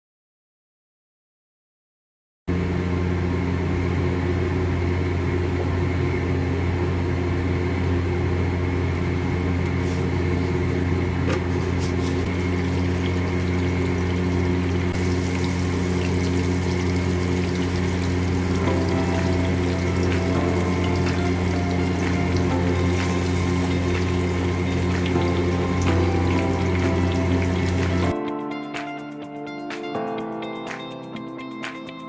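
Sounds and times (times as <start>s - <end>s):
steady machine hum: 2.5s - 28.1s.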